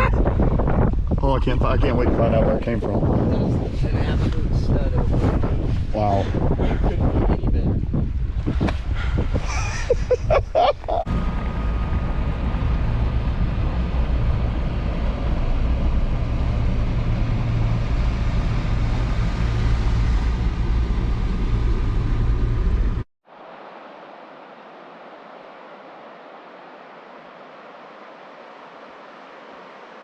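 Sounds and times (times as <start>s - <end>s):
boat motor droning: 11.1s - 23.0s.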